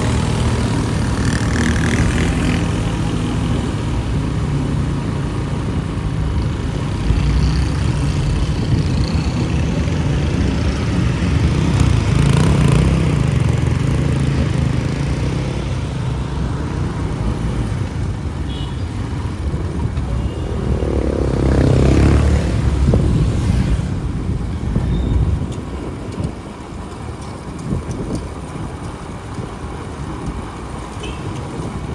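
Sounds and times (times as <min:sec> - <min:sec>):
vehicle passing: 0:00.0 - 0:24.4
motorcycle engine running: 0:00.0 - 0:25.4
traffic: 0:00.0 - 0:31.9.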